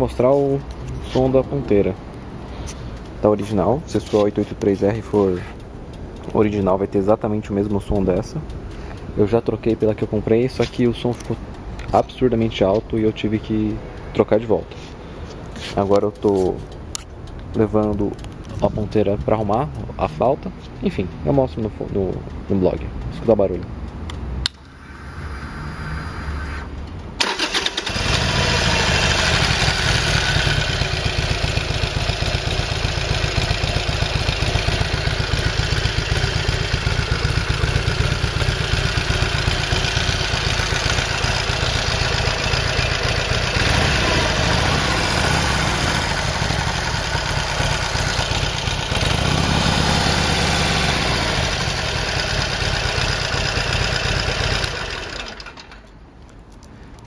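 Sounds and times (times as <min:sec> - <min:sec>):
motorcycle engine starting and idling: 0:24.4 - 0:56.1.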